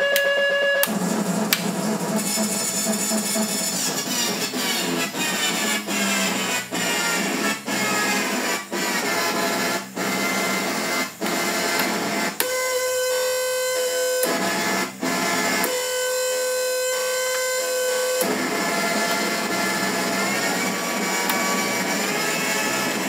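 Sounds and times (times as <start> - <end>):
harsh electronic keyboard noise: 0.0 - 23.0
held electronic tone: 0.0 - 23.0.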